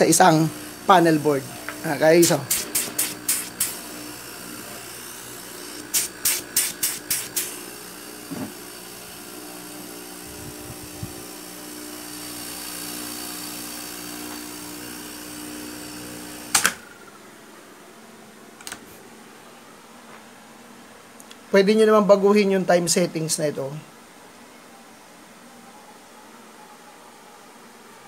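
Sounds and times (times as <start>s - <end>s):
electrical hum and motor whine: 0.0s - 28.0s.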